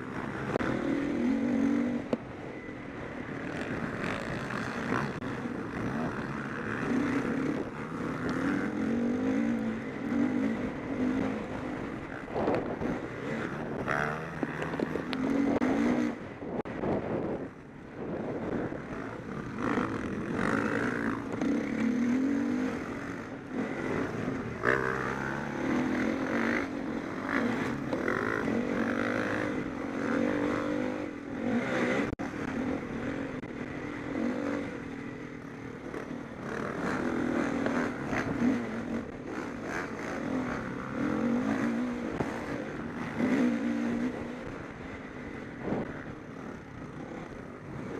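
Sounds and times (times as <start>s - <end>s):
motocross bikes revving: 0.0s - 47.9s.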